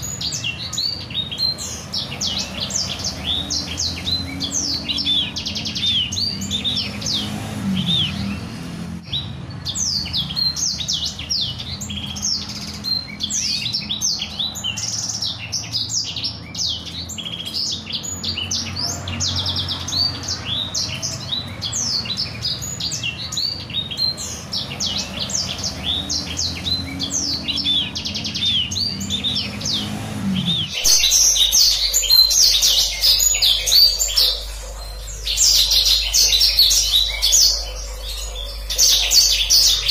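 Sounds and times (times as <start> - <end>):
songbird trilling song: 0.0 - 39.9.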